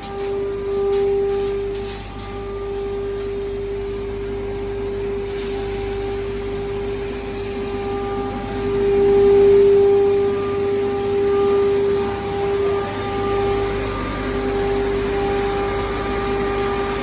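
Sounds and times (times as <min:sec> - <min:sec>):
hammer mill running: 0:00.0 - 0:17.0.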